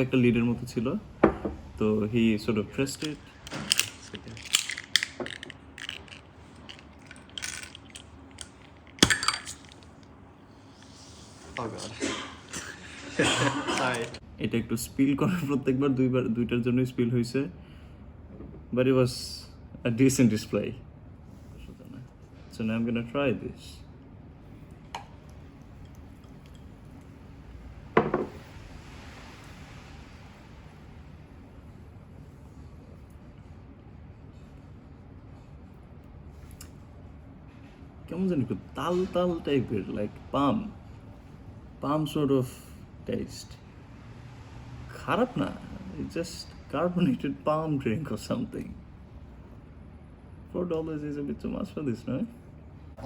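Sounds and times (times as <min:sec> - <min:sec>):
glass bottle clinking: 0:03.0 - 0:10.0, 0:28.0 - 0:28.4.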